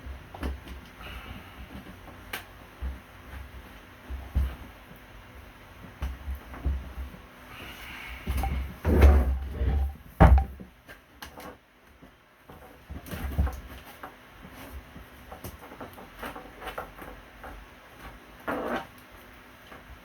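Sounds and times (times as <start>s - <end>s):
dull knocks and thuds: 8.3s - 10.7s.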